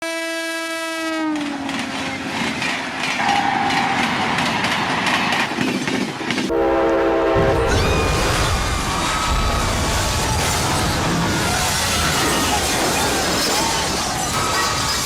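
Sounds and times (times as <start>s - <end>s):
train horn: 0.0s - 1.8s, 6.5s - 7.7s
train clattering on rails: 1.2s - 6.5s, 7.4s - 15.0s.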